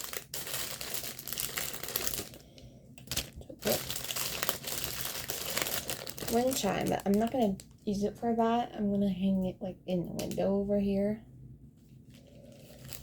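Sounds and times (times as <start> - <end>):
packaging crinkling: 0.0 - 7.9, 12.1 - 13.0.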